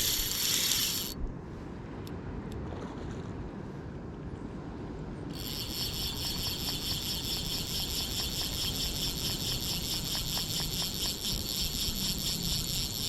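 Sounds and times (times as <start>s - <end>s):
fishing reel drag buzzing: 0.0s - 1.2s, 5.3s - 13.0s.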